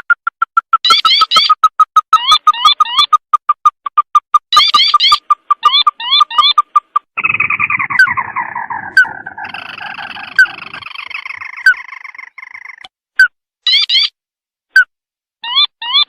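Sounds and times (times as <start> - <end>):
bird short evenly spaced notes: 0.0 - 14.2
bird rattling trill: 0.1 - 12.8.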